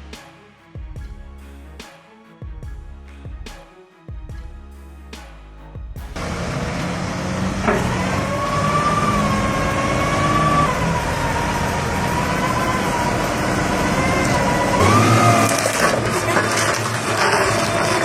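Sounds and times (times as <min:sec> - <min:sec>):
high whine: 0:06.2 - 0:16.0
heavy truck engine running: 0:06.2 - 0:18.0.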